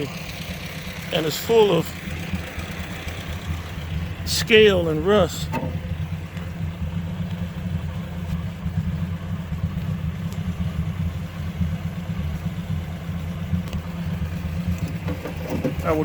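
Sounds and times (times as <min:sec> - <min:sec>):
tractor engine running steadily: 0:00.0 - 0:16.0.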